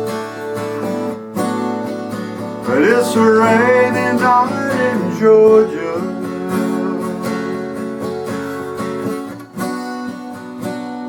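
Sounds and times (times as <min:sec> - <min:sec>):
acoustic guitar strumming: 0:00.0 - 0:11.0
person singing: 0:02.7 - 0:09.0.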